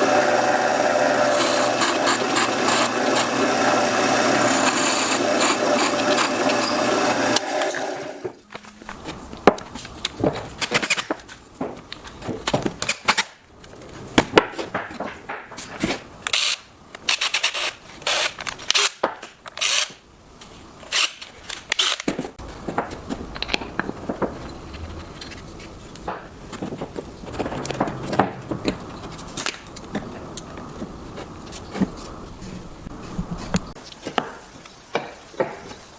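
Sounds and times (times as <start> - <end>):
power tool working wood: 0.0 - 8.4
wood pieces knocking and scraping: 8.2 - 20.0, 21.2 - 35.8.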